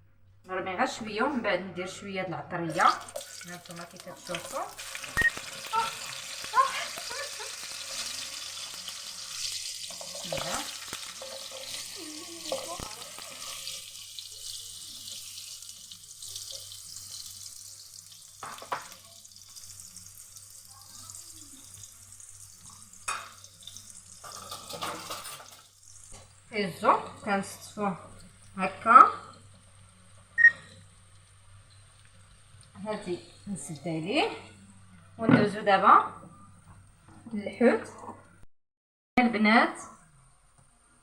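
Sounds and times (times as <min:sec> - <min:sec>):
carrots sizzling in hot oil: 0:02.7 - 0:28.7
clicks and knocks in pan: 0:18.4 - 0:19.0.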